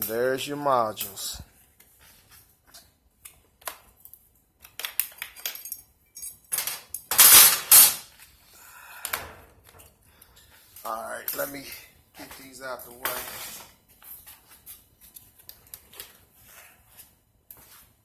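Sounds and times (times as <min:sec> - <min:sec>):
metal clinks and knocks: 0:05.1 - 0:08.1
loud metal clatter: 0:07.1 - 0:08.0.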